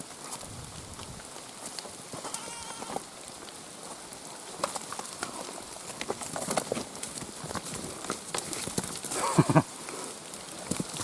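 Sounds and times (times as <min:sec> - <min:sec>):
goat bleating: 0:02.2 - 0:03.0.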